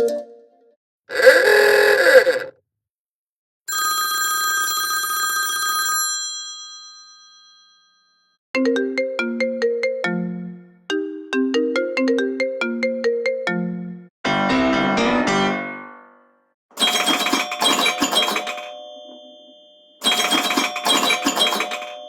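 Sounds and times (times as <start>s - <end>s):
dense burst of tone: 1.1s - 2.5s.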